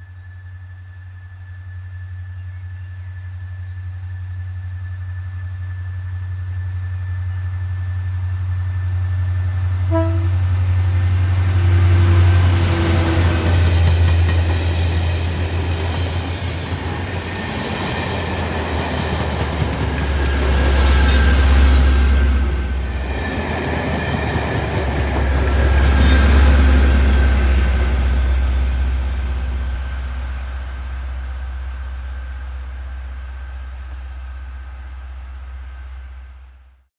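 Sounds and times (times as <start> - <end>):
locomotive engine drone: 0.0 - 36.9
train horn: 9.8 - 10.6, 19.9 - 23.0, 25.5 - 29.8
wheel-on-rail noise: 10.6 - 36.1.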